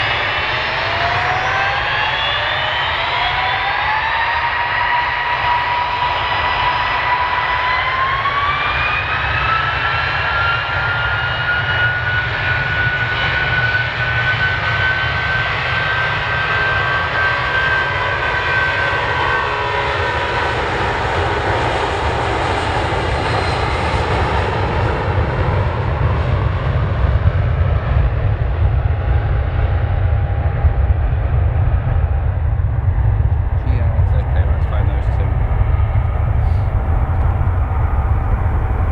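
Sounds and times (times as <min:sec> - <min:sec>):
jet engines spooling up: 0:00.0 - 0:08.2, 0:30.7 - 0:38.9
deep rumble: 0:28.8 - 0:38.9.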